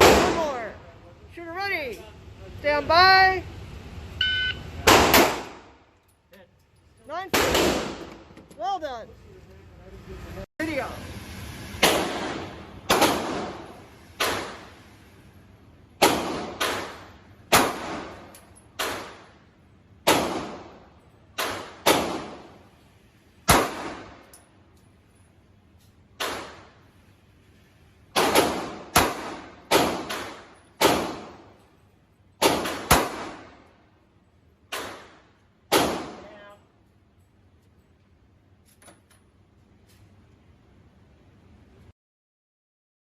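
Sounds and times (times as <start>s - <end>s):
pistol shots: 0.0s - 0.5s, 4.8s - 5.8s, 7.3s - 8.3s, 11.8s - 14.7s, 16.0s - 19.3s, 20.0s - 22.6s, 23.4s - 24.3s, 26.2s - 26.8s, 28.1s - 31.5s, 32.4s - 33.6s, 34.7s - 36.4s.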